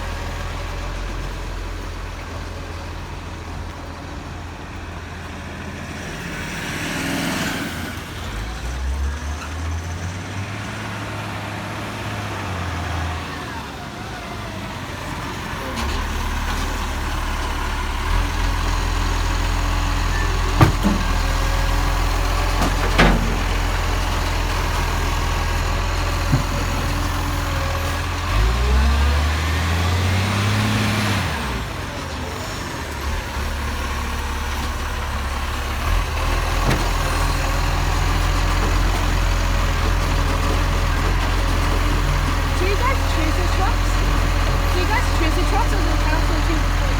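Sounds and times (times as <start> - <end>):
garbage truck engine running: 0.0 - 46.9
sharp knocks: 20.6 - 21.2.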